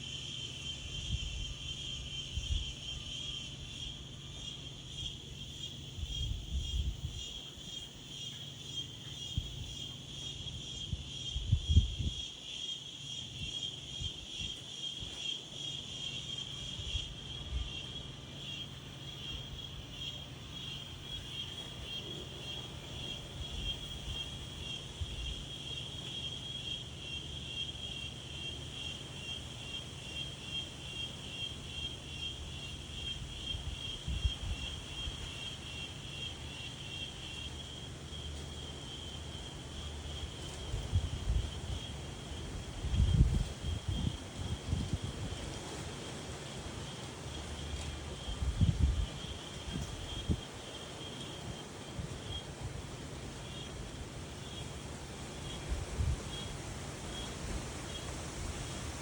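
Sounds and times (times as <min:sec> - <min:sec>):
insects trilling: 0:00.0 - 0:59.0
wind gusts on microphone: 0:05.8 - 0:07.8, 0:09.2 - 0:12.3, 0:32.6 - 0:35.4, 0:39.4 - 0:46.6, 0:47.5 - 0:59.0.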